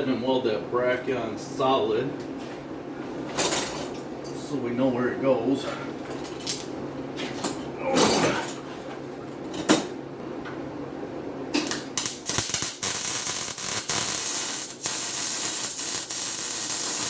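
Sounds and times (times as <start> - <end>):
welding arc crackling hiss: 11.6 - 17.0.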